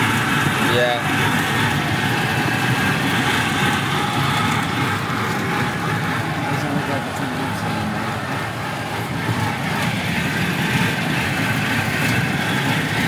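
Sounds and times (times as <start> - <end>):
miniature train rumbling: 0.0 - 13.0.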